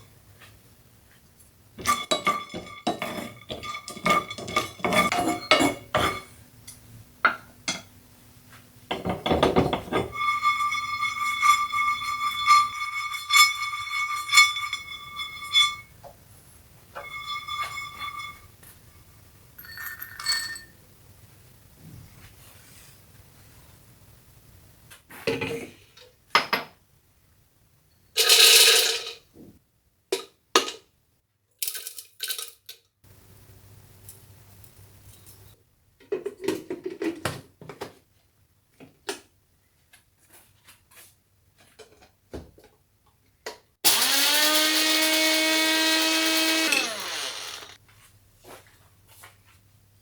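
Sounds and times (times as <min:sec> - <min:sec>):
metal utensils clinking: 0:01.8 - 0:06.3
metal scrape: 0:01.8 - 0:06.4, 0:09.6 - 0:16.0, 0:16.9 - 0:18.8, 0:44.8 - 0:47.8
blender motor whining: 0:43.8 - 0:47.8.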